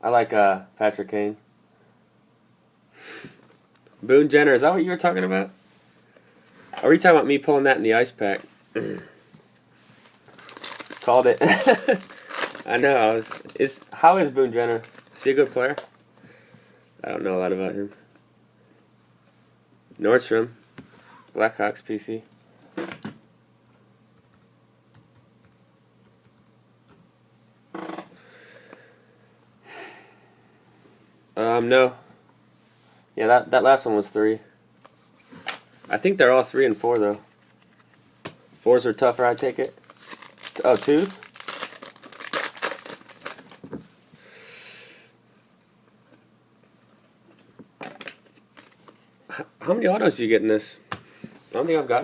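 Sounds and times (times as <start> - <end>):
card pack wrapper crinkling: 10.0 - 15.9, 39.0 - 43.6
cards being handled: 39.0 - 43.7, 48.1 - 49.0.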